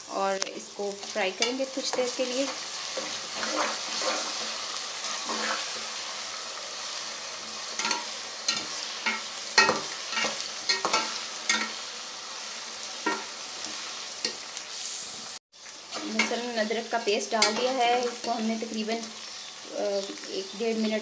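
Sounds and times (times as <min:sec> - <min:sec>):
oil sizzling in a pot: 0:00.0 - 0:21.0
metal spatula scraping a pot: 0:01.0 - 0:05.9.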